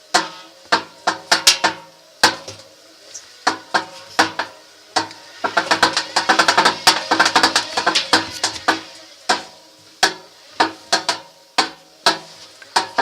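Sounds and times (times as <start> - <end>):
drum clattering rattle: 0.1 - 2.6, 3.4 - 13.0
washing machine drum knocking: 0.1 - 2.6, 3.5 - 13.0.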